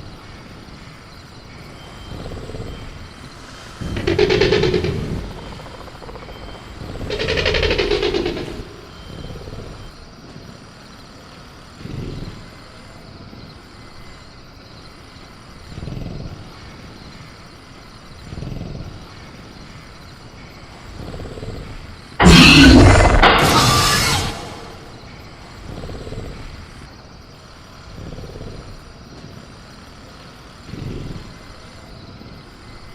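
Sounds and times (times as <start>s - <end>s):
high insect-like tone: 0.0s - 11.8s, 22.0s - 25.7s
creature growl: 3.8s - 9.1s, 22.2s - 25.0s
loud snarl or cage rattle: 3.8s - 9.1s, 22.2s - 25.1s.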